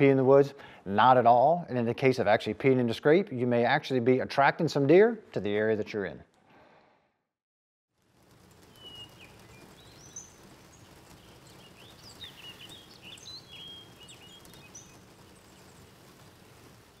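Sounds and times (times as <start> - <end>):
low background noise: 8.0 - 17.0
small birds chirping: 8.4 - 17.0.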